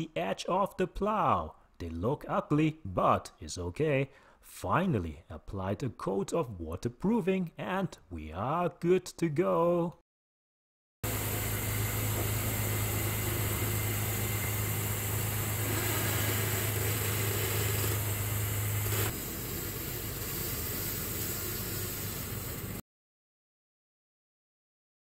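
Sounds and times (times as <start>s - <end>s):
snow plow hissing through snow: 11.0s - 22.8s
truck engine running: 11.1s - 20.2s.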